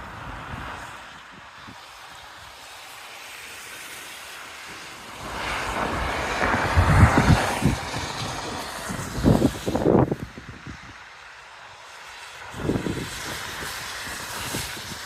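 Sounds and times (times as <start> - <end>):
wind buffeting microphone: 5.1 - 11.1, 12.4 - 15.0.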